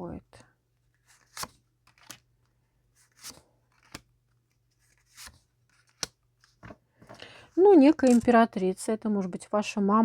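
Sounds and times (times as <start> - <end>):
cards snapping and sliding: 1.1 - 2.3, 3.0 - 4.1, 4.8 - 6.6.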